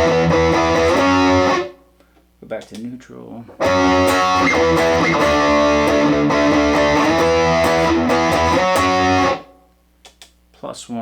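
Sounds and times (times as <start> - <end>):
electric guitar chords: 0.0 - 1.9, 3.6 - 9.7.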